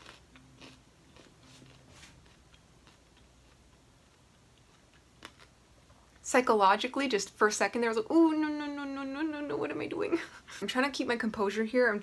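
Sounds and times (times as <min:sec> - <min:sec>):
crunchy chewing: 0:00.0 - 0:06.0.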